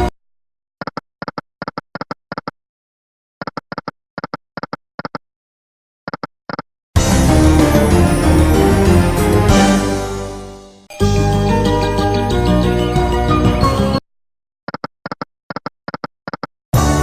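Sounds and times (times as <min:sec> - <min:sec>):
slot game music: 0:07.0 - 0:14.0.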